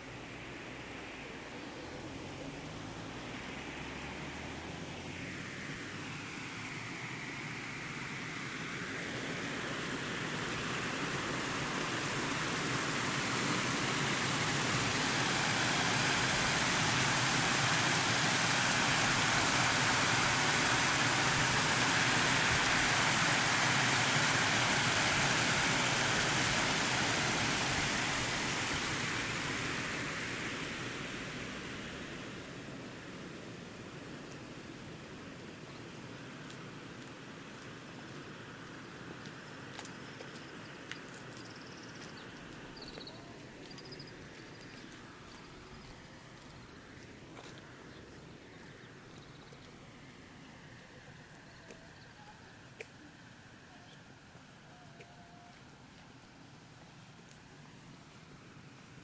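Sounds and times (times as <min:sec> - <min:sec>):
steady rushing noise: 0:04.7 - 0:33.1.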